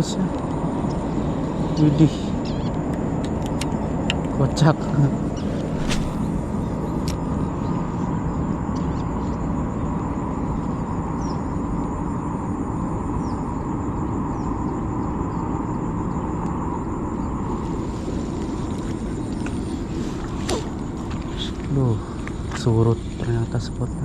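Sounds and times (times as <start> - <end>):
continuous low rush: 0.0 - 24.0
insects trilling: 0.0 - 24.0
faint short chirps: 5.4 - 6.2.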